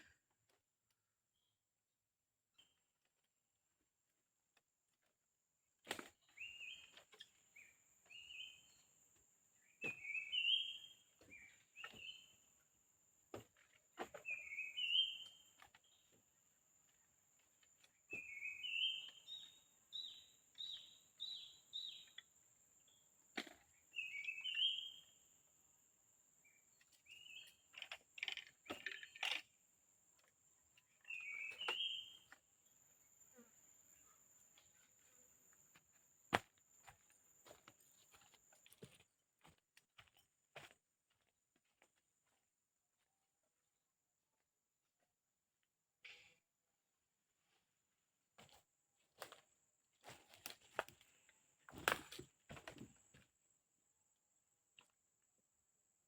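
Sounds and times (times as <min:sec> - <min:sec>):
bird chirping: 0:06.3 - 0:08.8, 0:09.6 - 0:12.4, 0:14.2 - 0:16.1, 0:18.1 - 0:22.3, 0:23.8 - 0:25.2, 0:26.4 - 0:29.4, 0:30.8 - 0:32.4.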